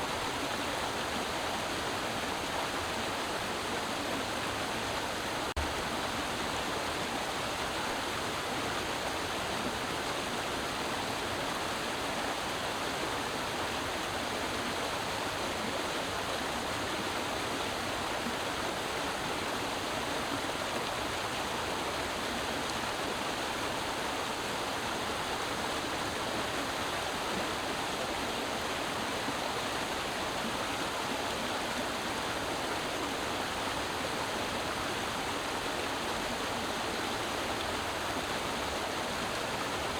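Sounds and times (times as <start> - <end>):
creek water running: 0.0 - 39.9.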